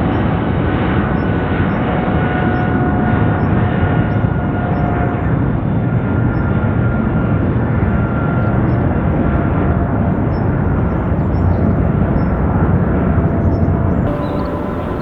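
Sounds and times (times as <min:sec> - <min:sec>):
jet engines rumbling: 0:10.4 - 0:15.0
faint high whine: 0:10.6 - 0:15.0.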